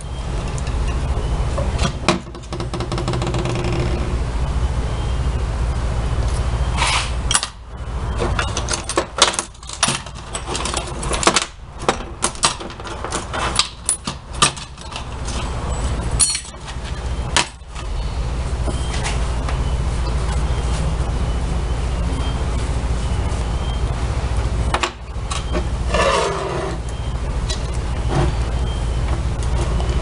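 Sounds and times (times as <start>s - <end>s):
metal parts and tools clinking: 8.2s - 17.9s.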